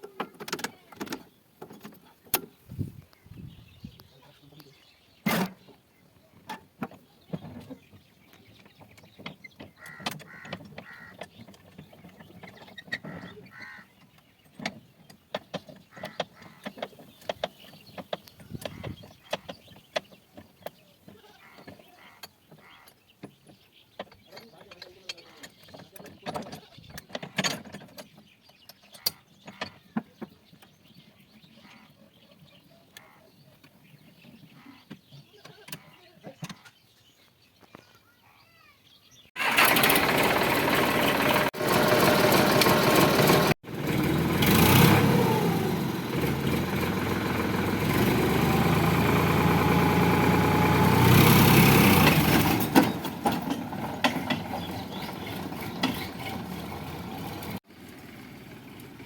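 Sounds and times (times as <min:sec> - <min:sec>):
tractor diesel engine running: 0:39.4 - 0:59.0.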